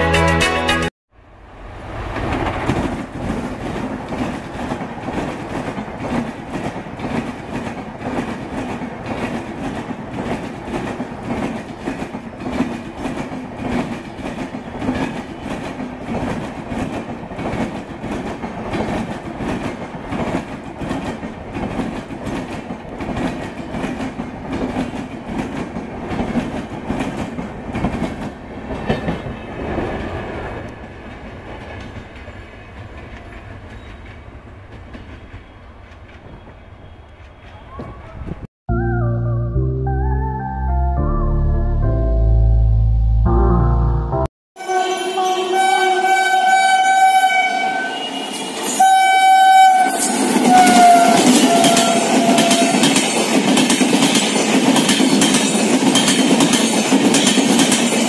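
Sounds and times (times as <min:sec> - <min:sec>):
train wheels clattering over rail joints: 0:51.4 - 0:58.0.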